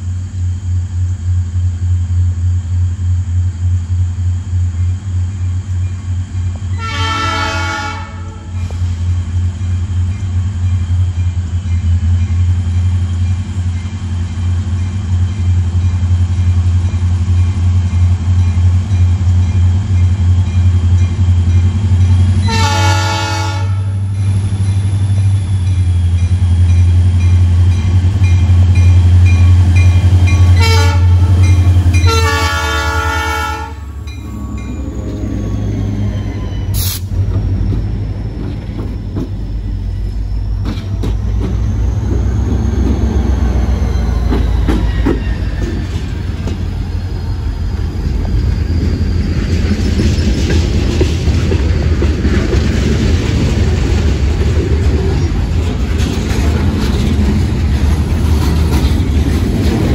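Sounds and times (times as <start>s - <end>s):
diesel locomotive engine rumbling: 0.0s - 59.9s
rail cars clattering: 0.0s - 59.9s
locomotive horn blasts: 6.7s - 8.7s, 22.4s - 24.2s, 30.3s - 35.0s.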